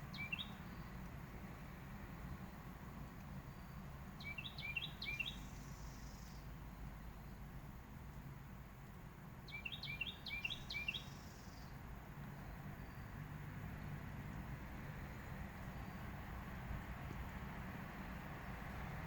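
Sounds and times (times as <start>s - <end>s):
songbird calling: 0.0s - 1.1s, 2.2s - 7.5s, 9.4s - 13.3s, 14.7s - 16.2s
low outdoor rumble: 0.0s - 19.0s.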